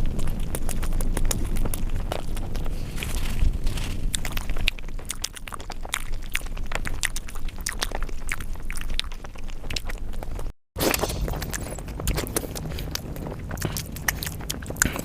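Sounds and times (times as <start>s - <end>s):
chewing with wet mouth clicks: 0.0s - 15.0s.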